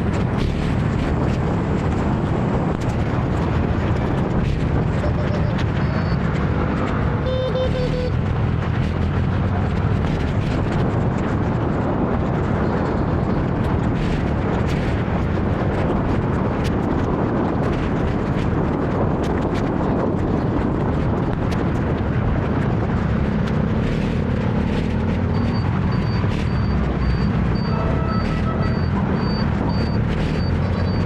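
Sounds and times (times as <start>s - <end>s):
traffic: 0.0s - 31.0s
wind rumble on microphone: 0.0s - 31.0s
scooter engine: 6.4s - 8.2s.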